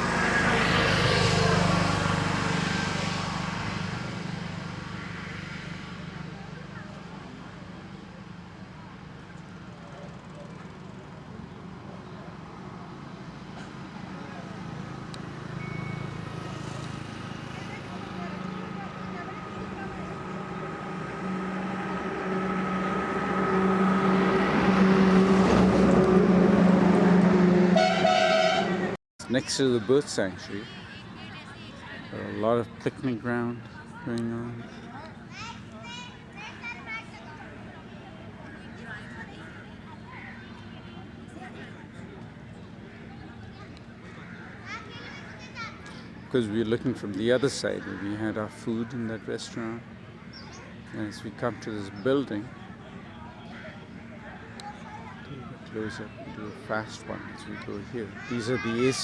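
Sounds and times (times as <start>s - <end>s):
low engine hum: 0.0s - 29.0s
road vehicle passing by: 0.0s - 59.0s.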